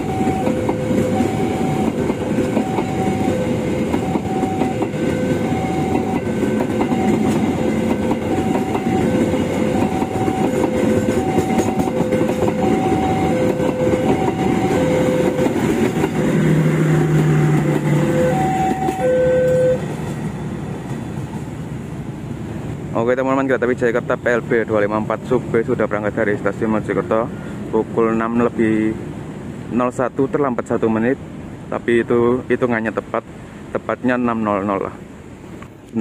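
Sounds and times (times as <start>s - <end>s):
level-crossing two-tone alarm: 0.0s - 16.0s, 17.6s - 19.9s
train coaches rumbling past: 0.0s - 36.0s.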